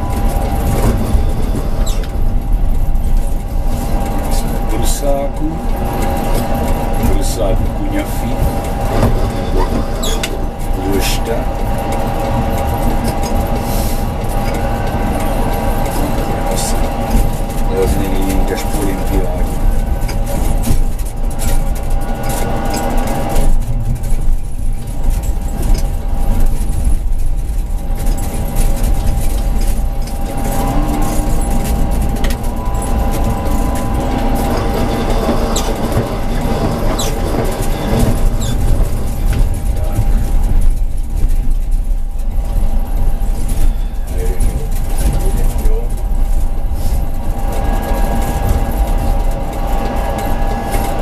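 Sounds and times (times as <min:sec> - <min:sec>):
tram wheels rumbling on rails: 0:00.0 - 0:51.0
constant high tone: 0:30.1 - 0:40.0.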